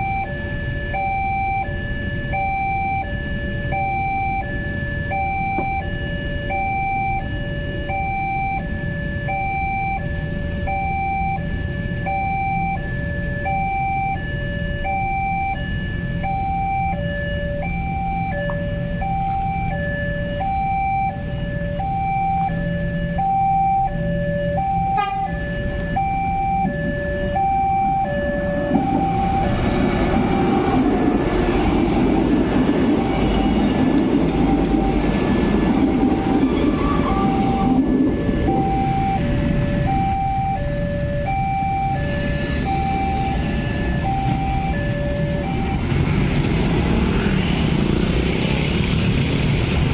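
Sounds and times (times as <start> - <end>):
two-tone crossing alarm: 0.0 - 49.9
approaching train rumble: 25.0 - 41.3, 42.0 - 49.9.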